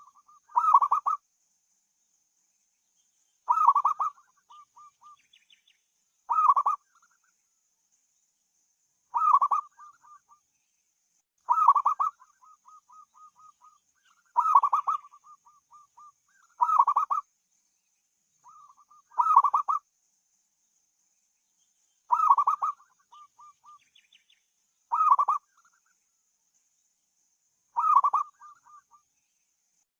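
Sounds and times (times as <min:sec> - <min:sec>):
dove cooing: 0:00.0 - 0:01.2, 0:03.5 - 0:04.9, 0:06.3 - 0:06.8, 0:09.2 - 0:09.9, 0:11.5 - 0:12.1, 0:14.4 - 0:15.1, 0:16.6 - 0:17.2, 0:19.2 - 0:19.8, 0:22.1 - 0:23.5, 0:24.9 - 0:25.4, 0:27.8 - 0:28.3
soft quick repeated bird notes: 0:03.4 - 0:07.3, 0:11.4 - 0:17.3, 0:18.4 - 0:19.8, 0:22.0 - 0:26.0, 0:27.7 - 0:29.1.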